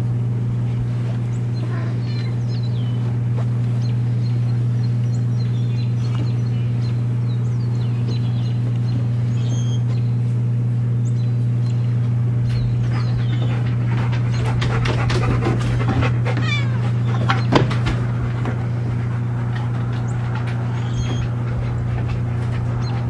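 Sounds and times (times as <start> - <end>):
steady low hum: 0.0 - 23.0
cat chirping and calling: 1.6 - 2.6, 16.3 - 17.2, 20.7 - 21.3.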